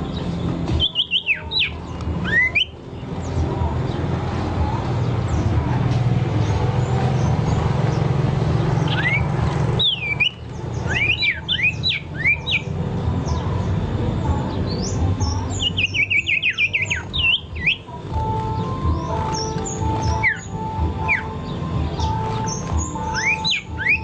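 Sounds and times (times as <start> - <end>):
small bird chirping: 6.3 - 24.0.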